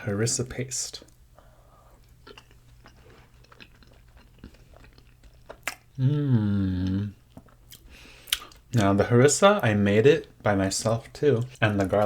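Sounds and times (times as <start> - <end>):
person chewing food: 1.4 - 8.9
hummed mmm of enjoyment: 5.6 - 7.3.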